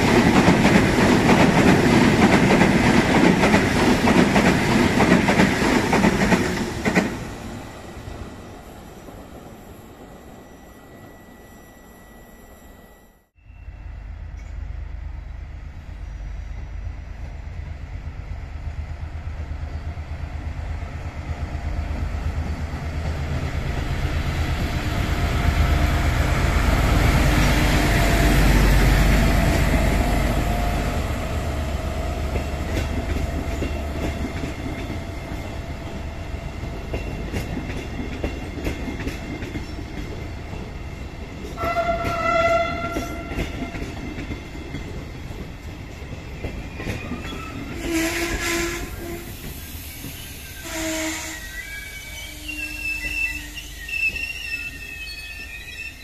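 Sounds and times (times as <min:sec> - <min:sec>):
train passing rumble: 0:00.0 - 0:55.7
train horn: 0:41.6 - 0:43.9, 0:47.7 - 0:49.4, 0:50.6 - 0:53.8.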